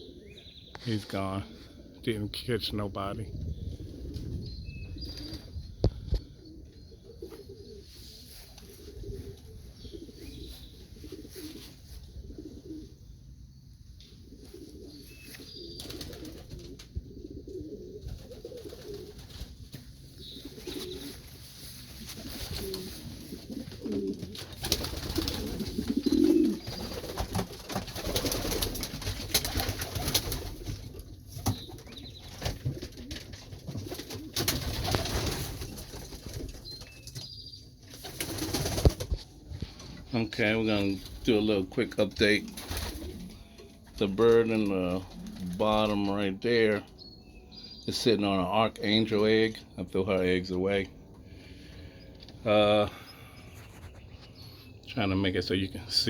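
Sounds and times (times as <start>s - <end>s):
pigeons cooing: 0.0s - 48.0s
rustling: 7.2s - 12.8s, 18.0s - 37.2s, 42.1s - 46.0s.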